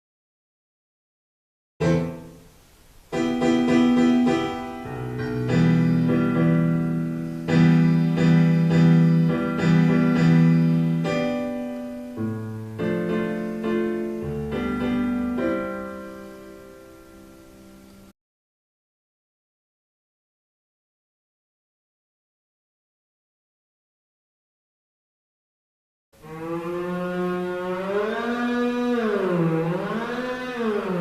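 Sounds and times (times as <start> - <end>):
slow piano chords: 1.8 - 18.2.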